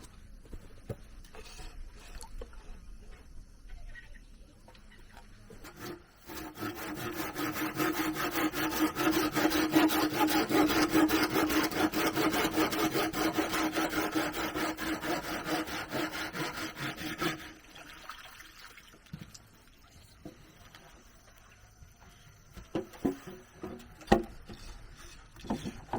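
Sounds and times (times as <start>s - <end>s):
hand saw cutting bamboo: 5.6s - 17.6s.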